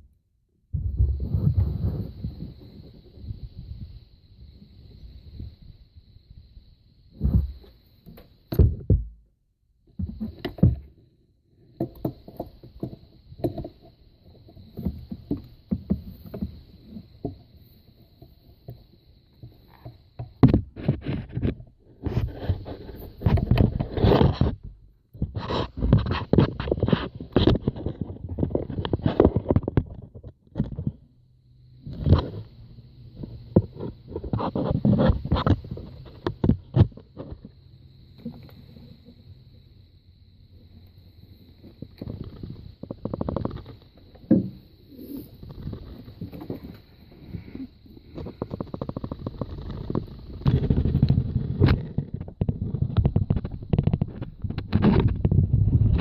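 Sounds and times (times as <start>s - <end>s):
knocks and scrapes of hand work: 9.9s - 11.0s, 11.7s - 31.0s, 33.2s - 38.6s, 41.7s - 56.0s.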